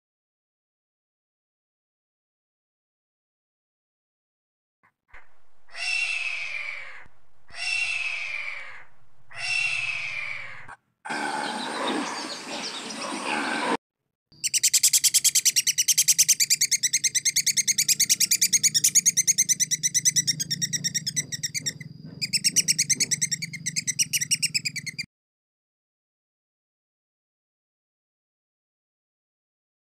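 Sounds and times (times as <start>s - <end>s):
low hum: 5.2s - 10.7s
fast high chirps: 14.4s - 25.1s.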